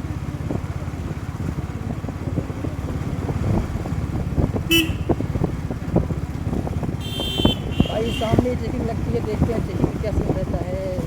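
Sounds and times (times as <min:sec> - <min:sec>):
motorcycle engine running: 0:00.0 - 0:11.0
road rumble: 0:00.0 - 0:11.0
short horn beep: 0:04.7 - 0:05.2, 0:07.0 - 0:08.4.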